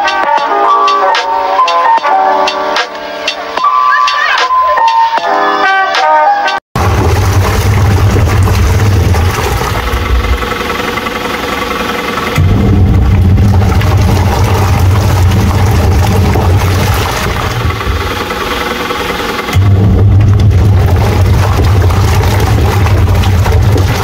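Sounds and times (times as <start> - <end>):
washing machine motor hum: 6.8 - 24.0.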